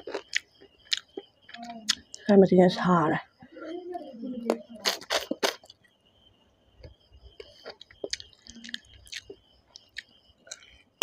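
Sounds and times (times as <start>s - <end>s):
wet mouth clicks: 0.0s - 2.2s
person chewing food: 0.0s - 2.3s, 4.8s - 5.9s, 6.8s - 11.0s.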